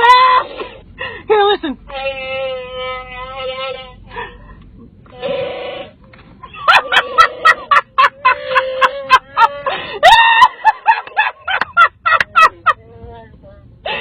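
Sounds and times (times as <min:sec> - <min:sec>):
woman laughing: 0:06.4 - 0:12.9.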